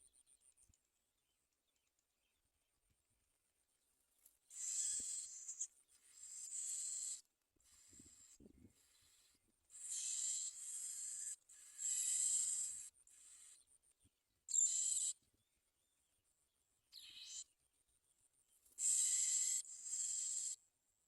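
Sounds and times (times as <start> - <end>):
nestlings begging calls: 4.5 - 8.4, 9.0 - 13.6, 14.5 - 15.2, 18.8 - 20.6.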